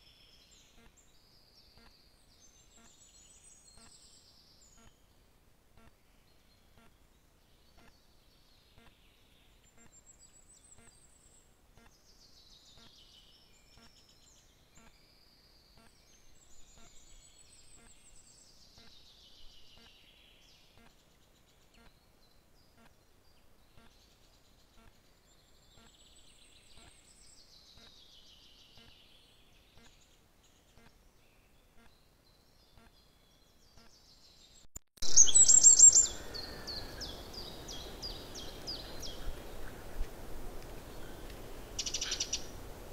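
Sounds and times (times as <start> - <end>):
songbirds singing faintly: 0.0 - 42.9
loud bird chirps: 35.0 - 39.3, 41.8 - 42.5.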